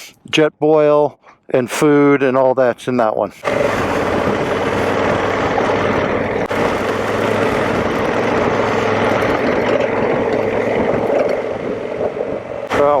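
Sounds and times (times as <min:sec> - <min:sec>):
motorcycle engine running: 0:03.4 - 0:13.0
steady rushing noise: 0:03.4 - 0:13.0.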